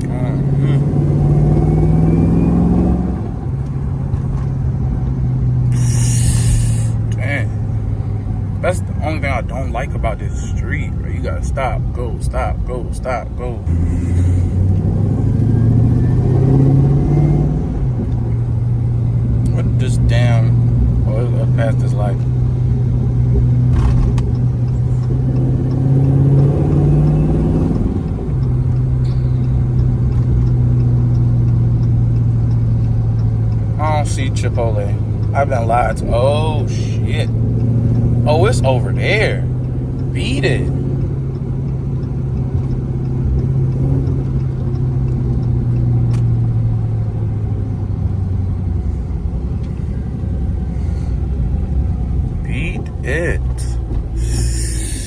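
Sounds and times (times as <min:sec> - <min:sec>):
car engine exhaust drone: 0:00.0 - 0:55.0.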